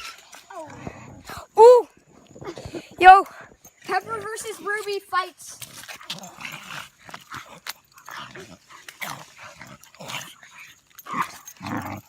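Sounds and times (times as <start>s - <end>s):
dogs growling while play-fighting: 0.0s - 1.5s, 5.6s - 12.0s.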